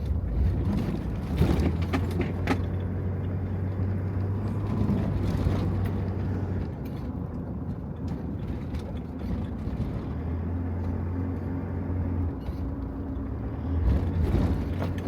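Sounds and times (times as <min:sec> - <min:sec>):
van engine low hum: 0:00.0 - 0:15.0.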